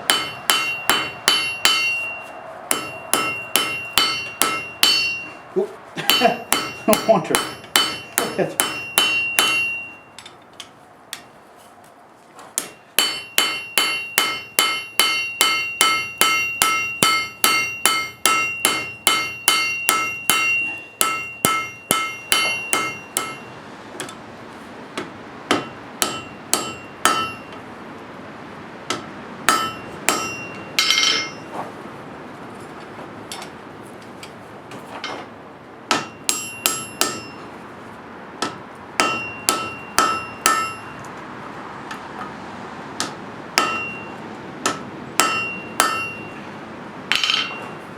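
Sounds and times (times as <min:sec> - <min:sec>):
hammer striking steel on anvil: 0:00.0 - 0:05.4, 0:06.0 - 0:10.4, 0:12.6 - 0:24.2, 0:25.0 - 0:27.6, 0:28.9 - 0:31.6, 0:35.9 - 0:37.5, 0:38.4 - 0:41.1, 0:43.0 - 0:46.5, 0:47.1 - 0:47.8.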